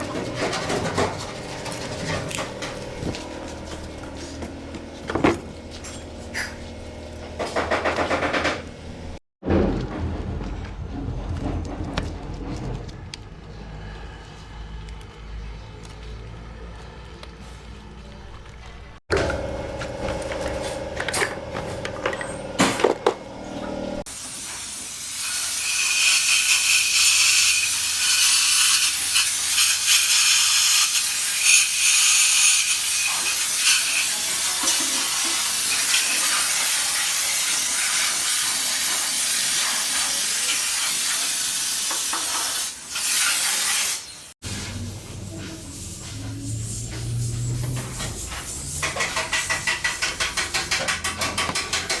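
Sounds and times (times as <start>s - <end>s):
clinks and knocks: 19.1s - 23.2s, 48.8s - 52.0s.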